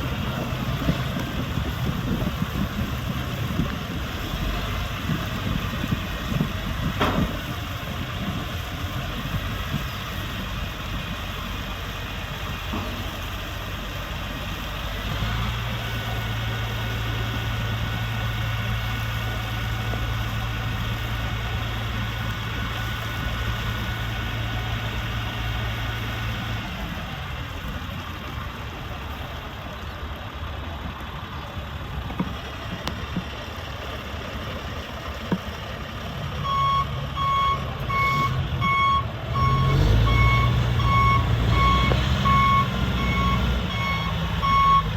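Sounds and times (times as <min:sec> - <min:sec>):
diesel truck engine running: 0:00.0 - 0:44.9
reversing alarm beeping: 0:36.4 - 0:44.9.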